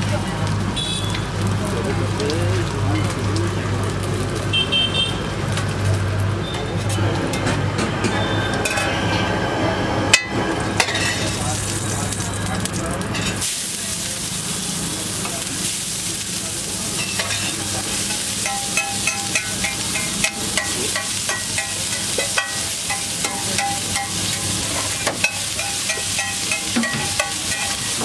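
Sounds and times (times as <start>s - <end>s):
onion sizzling on a griddle: 0.0s - 28.0s
metal spatula scraping griddle: 16.9s - 28.0s.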